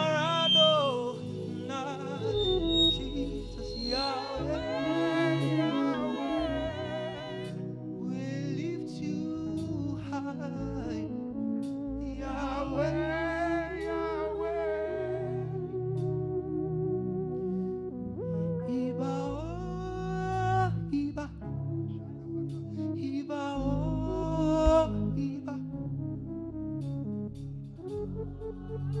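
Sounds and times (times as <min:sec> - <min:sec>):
person singing long notes: 0:00.0 - 0:07.7
sustained instrumental backing: 0:00.0 - 0:10.4.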